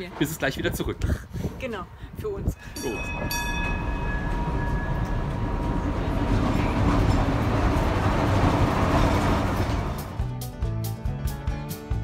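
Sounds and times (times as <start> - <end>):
high steady tone: 2.6 - 8.8
train rumble and hiss: 3.6 - 10.4.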